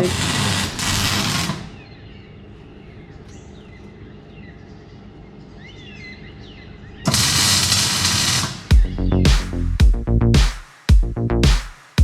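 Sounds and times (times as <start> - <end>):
loud burst of hissing noise: 0.0 - 1.8, 7.1 - 8.7.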